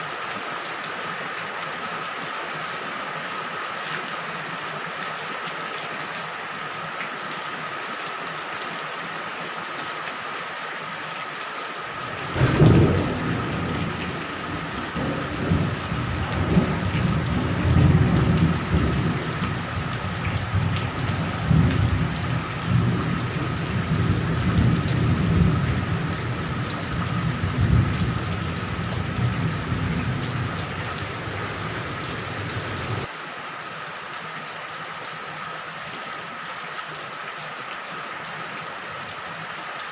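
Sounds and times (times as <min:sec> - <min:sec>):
heavy rain: 0:00.0 - 0:39.9
thunder cracking and rumbling: 0:12.1 - 0:33.1.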